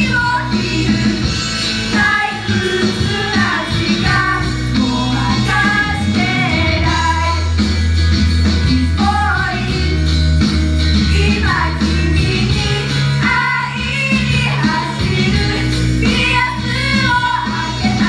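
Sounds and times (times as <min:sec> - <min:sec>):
deep bass line: 0:00.0 - 0:18.0
rock-pop backing music: 0:00.0 - 0:18.0
group singing in unison: 0:01.9 - 0:07.5.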